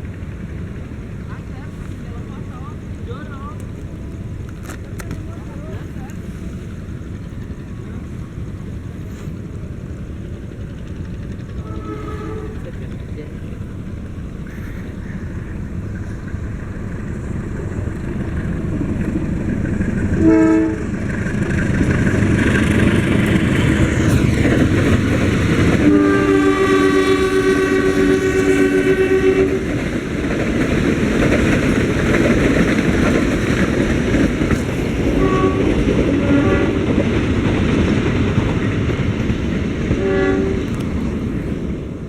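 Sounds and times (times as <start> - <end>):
train wheels rumbling on rail: 0.0 - 42.0
train horn: 11.6 - 12.8, 20.2 - 21.0, 25.7 - 29.8, 35.1 - 37.0, 40.0 - 40.8.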